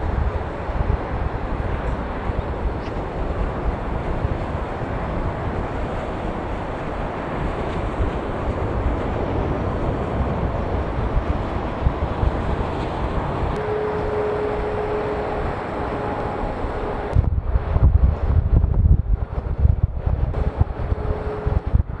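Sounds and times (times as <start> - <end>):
jet engines roaring: 0.0 - 22.0
wind buffeting microphone: 0.0 - 22.0
faint engine whine: 8.3 - 17.9.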